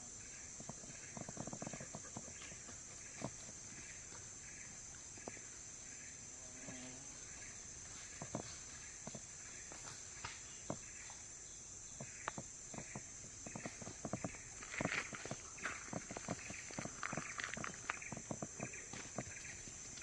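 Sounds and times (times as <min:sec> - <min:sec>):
insect chirps: 0:00.0 - 0:20.0
insects buzzing: 0:00.0 - 0:20.0
footsteps and snaps on forest floor: 0:07.4 - 0:20.0.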